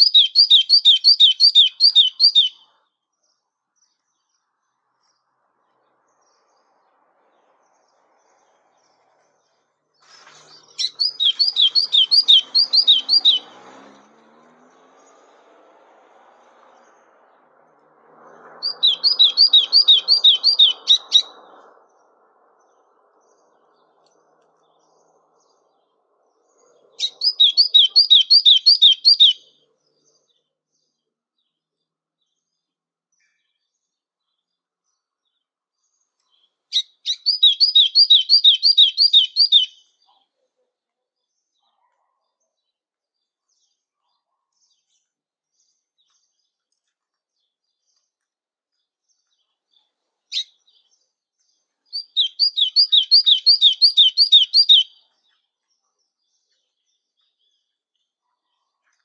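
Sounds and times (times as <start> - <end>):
songbird whistling high notes: 18.6 - 21.3, 27.0 - 29.4, 37.1 - 39.8, 52.0 - 54.9.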